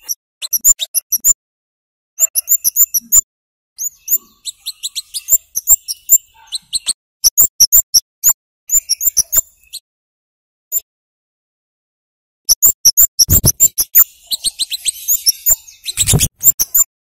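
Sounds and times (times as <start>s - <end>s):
high sharp bird calls: 2.2s - 3.2s, 3.8s - 9.8s, 12.5s - 16.9s.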